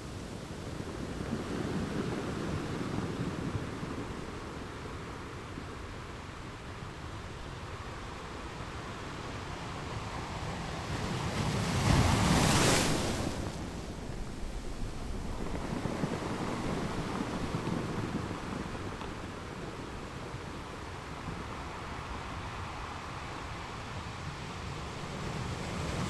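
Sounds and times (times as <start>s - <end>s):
sea waves crashing on beach: 0.0s - 26.0s
wind buffeting microphone: 9.9s - 22.5s.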